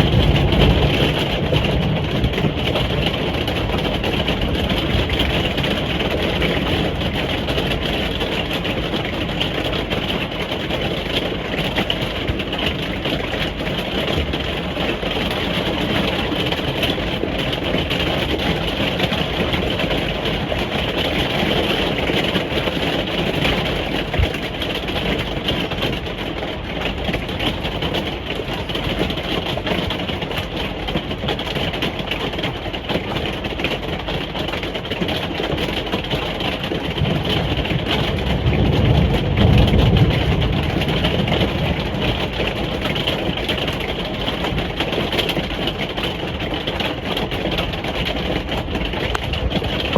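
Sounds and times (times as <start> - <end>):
rain on a caravan roof: 0.0 - 49.9.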